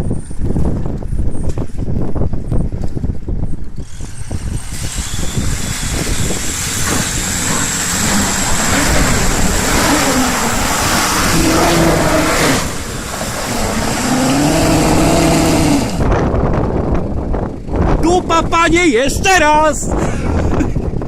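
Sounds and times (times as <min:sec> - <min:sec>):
loud rushing noise: 0:03.8 - 0:16.2
engine revving hard: 0:03.9 - 0:16.1.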